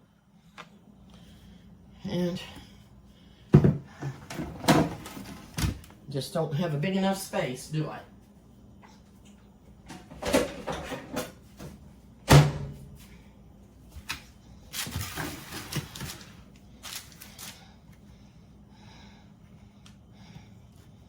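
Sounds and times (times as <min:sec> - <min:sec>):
utensils and dishes clattering: 0:10.0 - 0:11.4.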